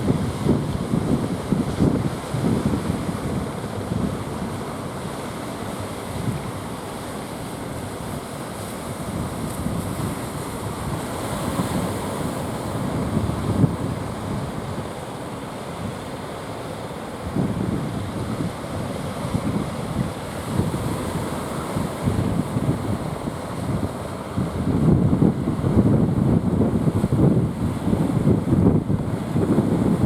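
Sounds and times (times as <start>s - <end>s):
wind buffeting microphone: 0.0s - 4.4s, 9.0s - 14.9s, 17.3s - 30.0s
sea surf breaking: 0.0s - 30.0s.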